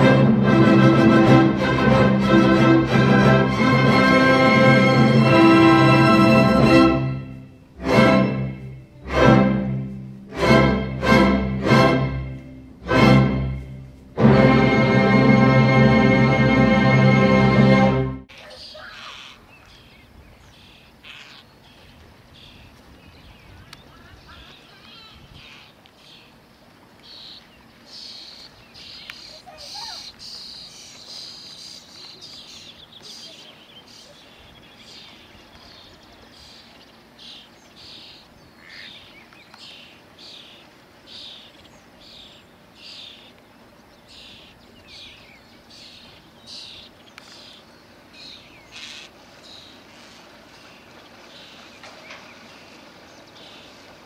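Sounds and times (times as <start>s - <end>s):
birds chirping: 18.3s - 54.0s.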